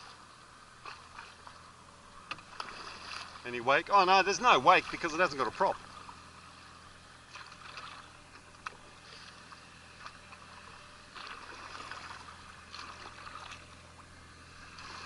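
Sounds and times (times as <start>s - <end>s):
low steady hum: 0.0s - 15.0s
paddle splashing water: 0.0s - 15.0s.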